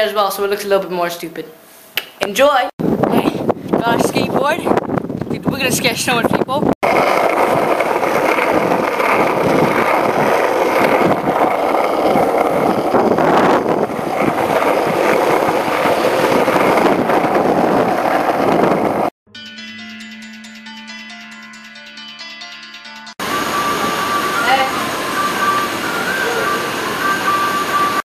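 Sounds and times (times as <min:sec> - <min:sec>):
wind buffeting microphone: 0:02.8 - 0:19.2
skateboard wheels rolling on pavement: 0:03.9 - 0:19.1, 0:23.2 - 0:28.0.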